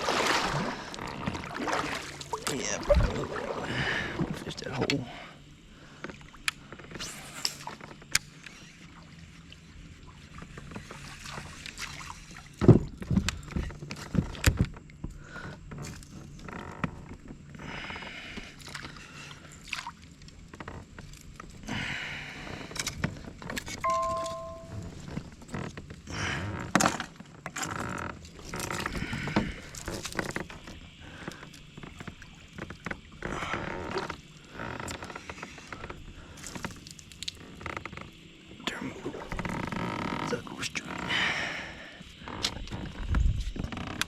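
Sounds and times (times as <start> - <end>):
handling knocks and scrapes in a kayak: 6.1 - 17.5, 24.8 - 36.9, 42.4 - 44.0
two-note beep: 23.9 - 25.0.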